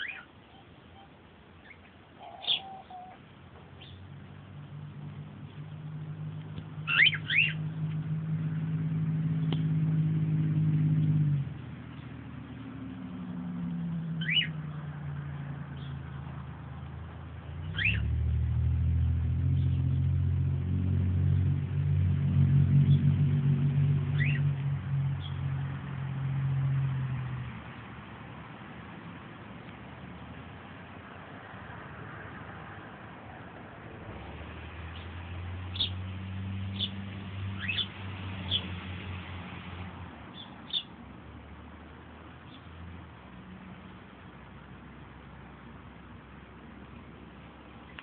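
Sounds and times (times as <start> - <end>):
young bird chirping: 0.0 - 3.2, 6.9 - 7.6, 14.2 - 14.5, 35.7 - 36.0, 37.6 - 38.7, 40.3 - 40.9
low engine drone: 4.0 - 31.6.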